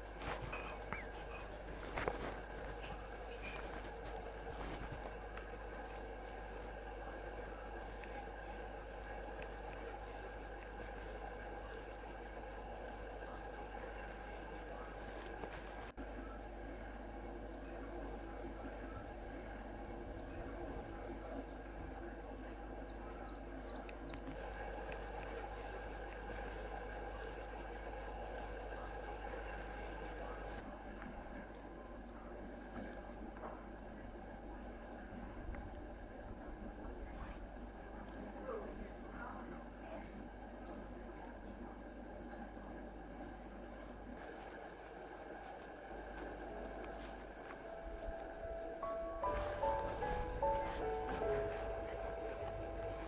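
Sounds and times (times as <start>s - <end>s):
outdoor background hiss: 0.0s - 53.0s
songbird calling high thin notes: 46.0s - 53.0s.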